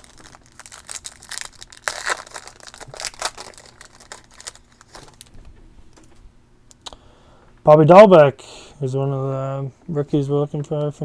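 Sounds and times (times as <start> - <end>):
cards and packaging crinkling: 0.0 - 5.4.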